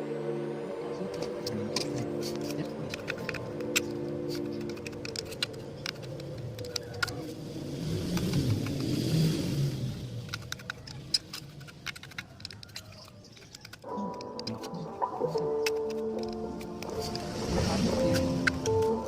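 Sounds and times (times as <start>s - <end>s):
vehicle passing: 4.6s - 12.4s, 16.8s - 19.0s.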